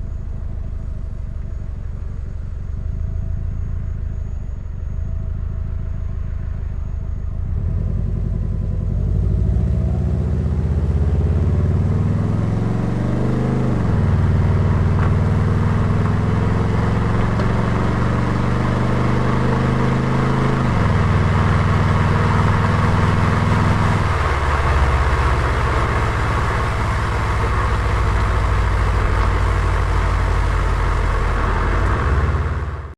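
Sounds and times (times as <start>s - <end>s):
road noise: 0.0s - 32.9s
car engine accelerating through gears: 7.4s - 32.9s.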